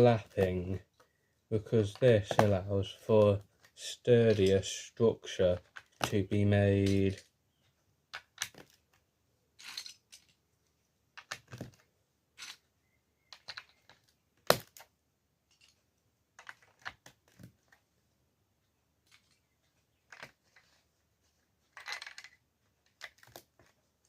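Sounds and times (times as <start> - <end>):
plastic brick snapping: 8.1 - 8.8, 13.3 - 14.9
plastic bricks clicking: 8.1 - 9.0, 9.6 - 10.4, 11.2 - 11.8, 13.3 - 14.9, 16.4 - 17.8, 21.7 - 23.8.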